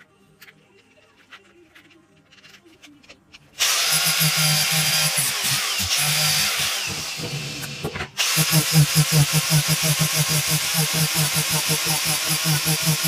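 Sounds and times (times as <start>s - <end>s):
power tool pulsing hum: 3.6s - 13.0s.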